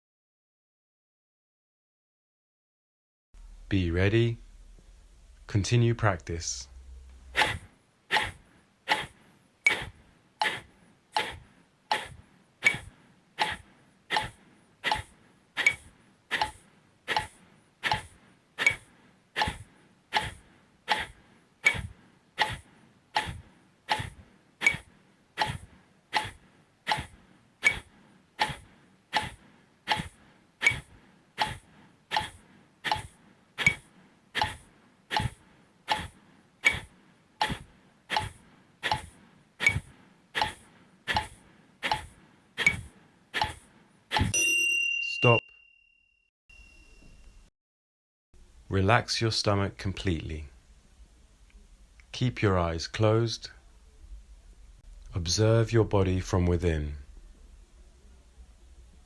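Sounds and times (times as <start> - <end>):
forceful nasal exhalations: 7.2 - 44.3.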